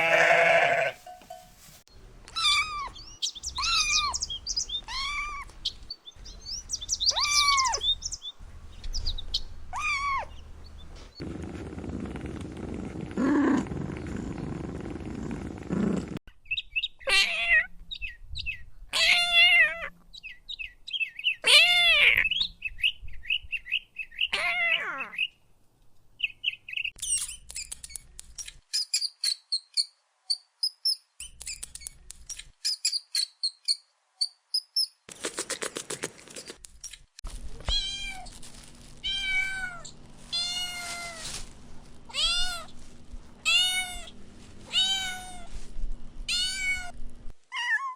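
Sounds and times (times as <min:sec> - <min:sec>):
kittens meowing: 0:02.3 - 0:03.0, 0:03.6 - 0:04.2, 0:04.8 - 0:05.6, 0:07.0 - 0:07.8, 0:09.7 - 0:10.3, 0:39.0 - 0:41.2, 0:42.1 - 0:42.7, 0:43.5 - 0:44.1, 0:44.7 - 0:45.5, 0:46.3 - 0:47.0.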